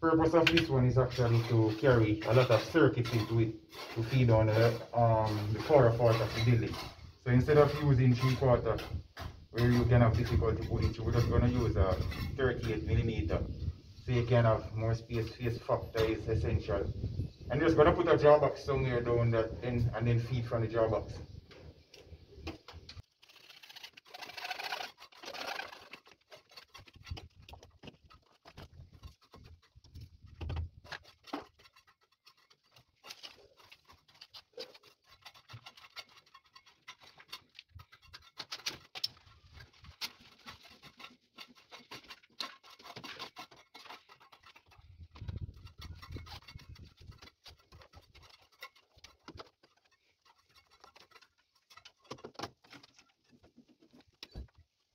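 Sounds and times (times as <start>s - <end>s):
clicks taps and scrapes on metal: 21.5s - 54.9s.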